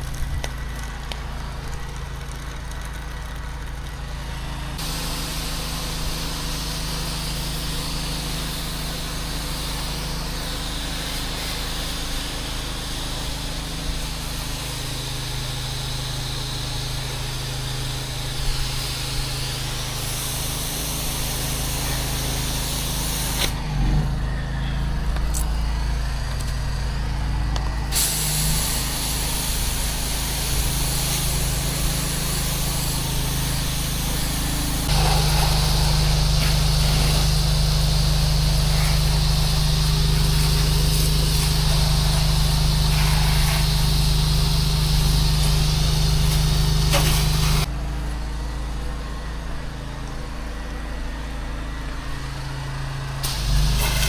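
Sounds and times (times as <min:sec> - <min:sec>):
high-pressure water spray hiss: 0:00.0 - 0:23.8, 0:27.9 - 0:47.7, 0:53.2 - 0:54.0
pressure washer engine running: 0:00.0 - 0:54.0.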